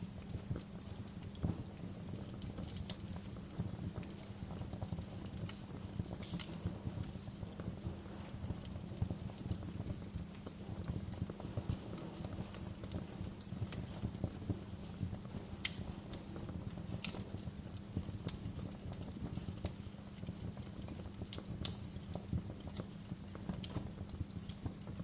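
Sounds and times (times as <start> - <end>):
sharp fire snaps: 0.0 - 25.0
wood fire crackling: 0.0 - 25.0.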